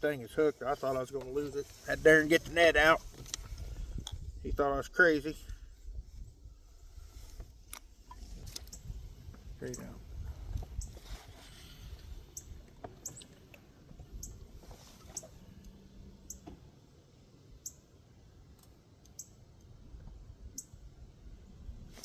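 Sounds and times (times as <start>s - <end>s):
wind on microphone: 1.3s - 12.7s, 19.8s - 22.0s.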